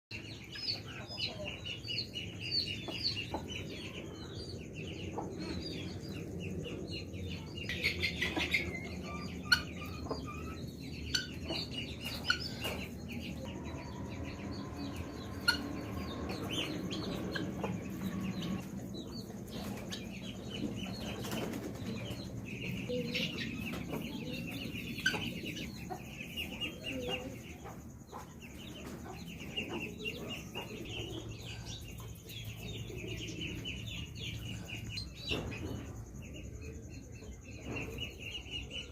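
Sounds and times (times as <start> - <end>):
chickens clucking: 0.1 - 38.9.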